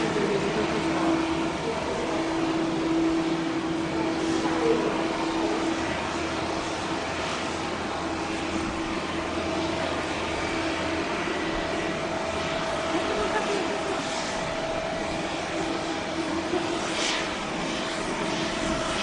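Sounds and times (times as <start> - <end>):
jet engines running: 0.0 - 19.0.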